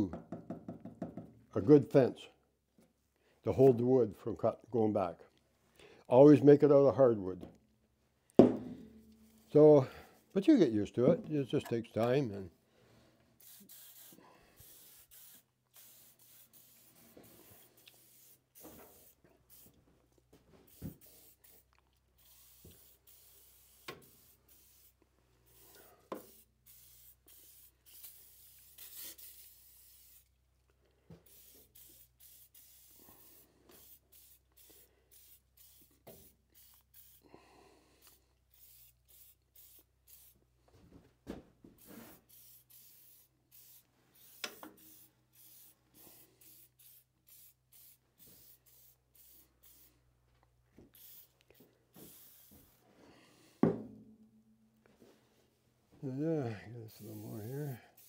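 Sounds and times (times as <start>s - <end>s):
sharp knocks: 8.4s - 9.0s.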